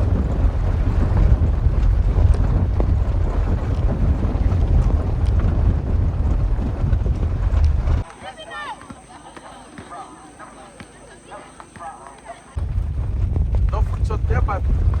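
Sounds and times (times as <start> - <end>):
wind buffeting microphone: 0.0 - 8.1, 12.5 - 15.0.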